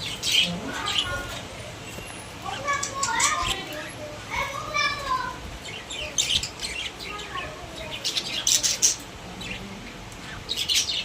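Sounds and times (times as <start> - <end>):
budgerigars chirping: 5.6 - 11.0.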